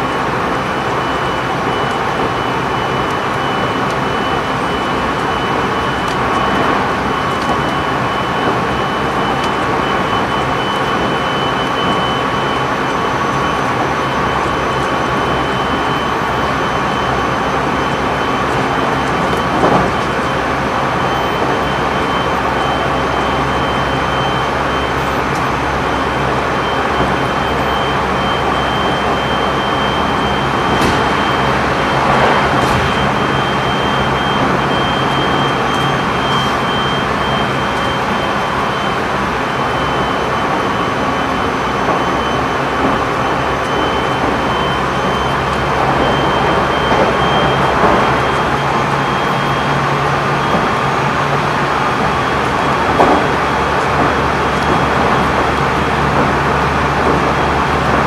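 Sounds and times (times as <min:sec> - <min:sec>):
train wheels rumbling on rails: 0:00.0 - 0:58.0
passing train rush: 0:24.5 - 0:58.0.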